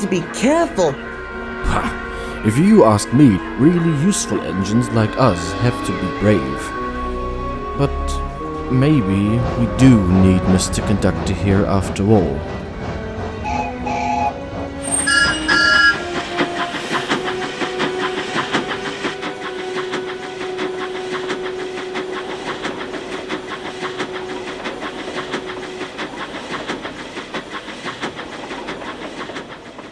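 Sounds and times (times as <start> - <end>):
steam train wheels clattering: 2.0 - 29.9
steady tone: 12.9 - 18.8.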